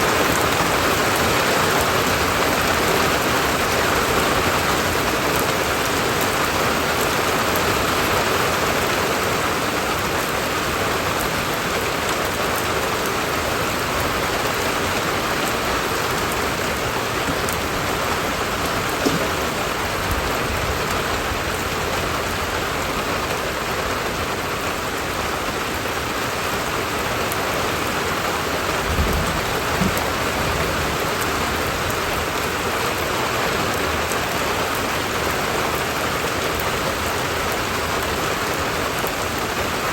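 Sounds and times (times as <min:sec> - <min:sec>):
rain pattering: 0:00.0 - 0:39.9
soft knocks: 0:17.2 - 0:20.0.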